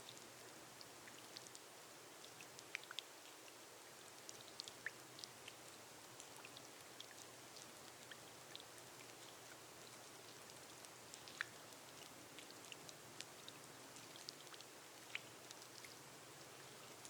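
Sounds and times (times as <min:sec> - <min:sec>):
rain on a glass roof: 0:00.0 - 0:17.0
raindrops ticking: 0:04.2 - 0:17.0.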